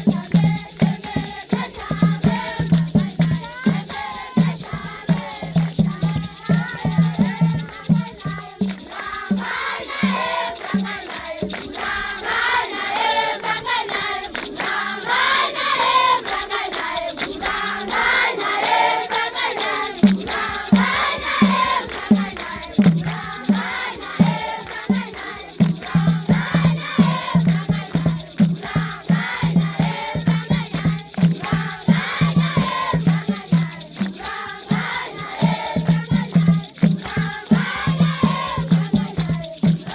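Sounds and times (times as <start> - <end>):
children singing in chorus: 0.0 - 39.9
shaken rattles: 0.0 - 39.9
steady drumbeat: 0.0 - 39.9.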